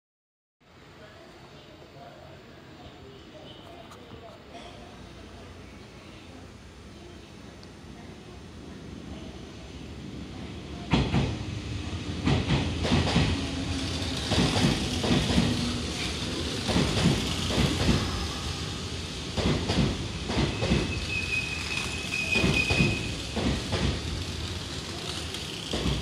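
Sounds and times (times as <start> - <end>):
train rumble: 3.6 - 26.0
wheels clacking over rail joints: 12.2 - 18.1, 21.8 - 26.0.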